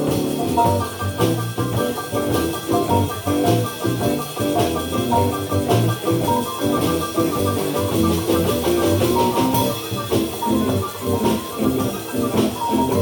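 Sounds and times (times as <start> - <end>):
live blues band playing: 0.0 - 13.0
steady drum beat: 0.0 - 13.0.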